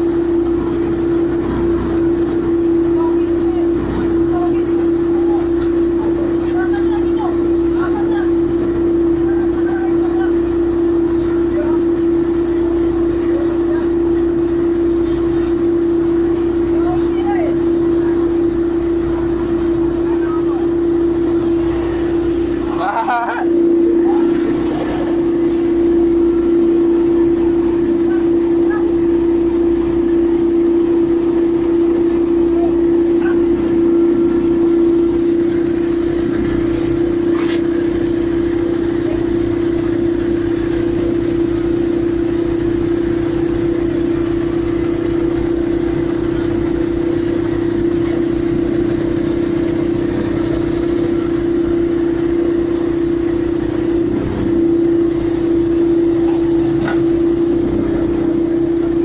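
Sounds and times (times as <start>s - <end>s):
pile driving machinery droning: 0.0s - 59.0s.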